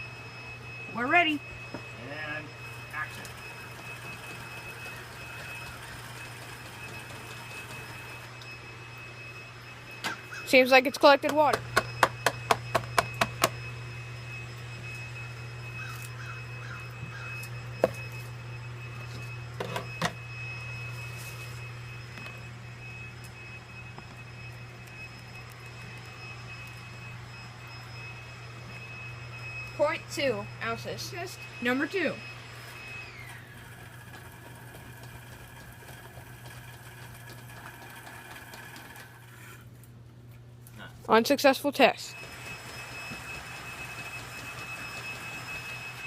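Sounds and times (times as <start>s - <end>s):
faint high whine: 0.0s - 39.6s, 40.8s - 46.0s
low electrical hum: 7.4s - 42.2s.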